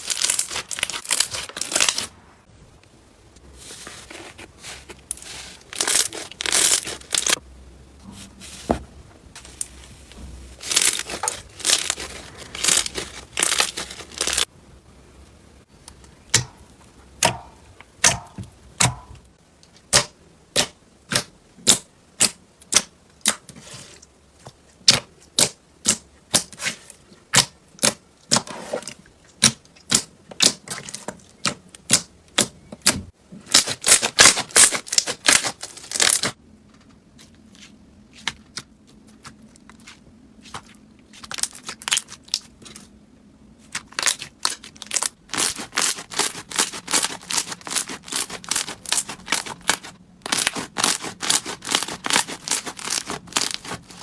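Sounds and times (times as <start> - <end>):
slime squishing: 0.0 - 2.1, 3.6 - 7.4, 8.1 - 14.5, 37.1 - 43.0, 43.6 - 54.0.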